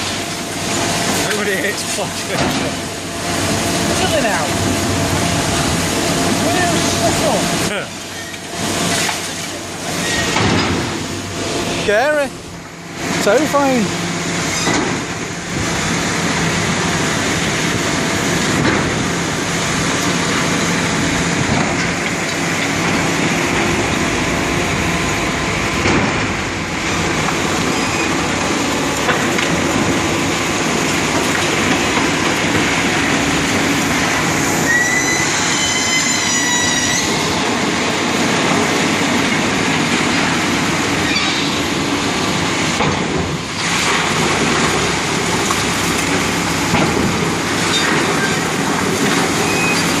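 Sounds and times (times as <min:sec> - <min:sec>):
demolition machinery rumbling: 0:00.0 - 0:50.0
high metallic squeal: 0:34.6 - 0:37.3, 0:49.4 - 0:50.0.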